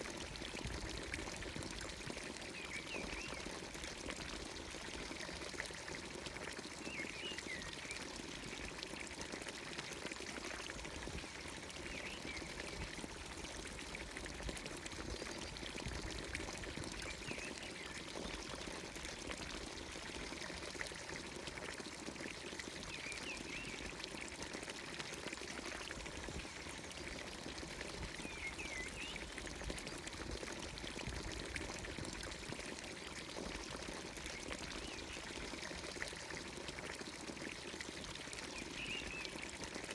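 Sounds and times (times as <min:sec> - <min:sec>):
water pouring from fountain spout: 0:00.0 - 0:39.9.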